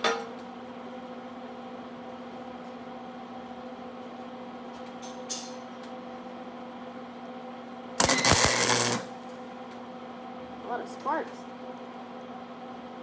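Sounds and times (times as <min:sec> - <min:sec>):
welding arc crackling: 0:08.0 - 0:09.2
electrical hum: 0:08.0 - 0:09.3.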